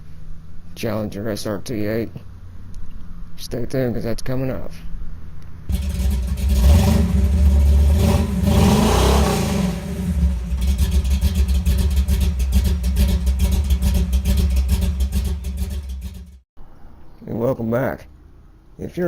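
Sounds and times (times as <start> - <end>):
engine revving: 5.7 - 16.4.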